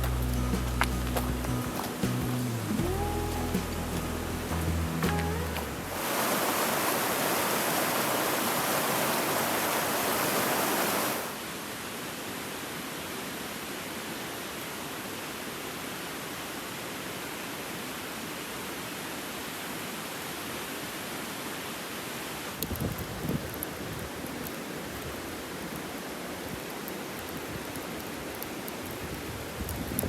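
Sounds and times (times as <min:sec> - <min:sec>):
river water rushing: 0:00.0 - 0:22.6.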